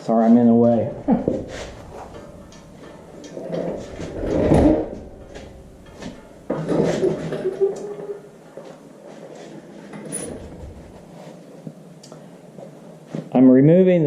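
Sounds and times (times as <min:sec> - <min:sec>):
metal clunks and scraping: 0:00.6 - 0:08.2, 0:09.4 - 0:11.2.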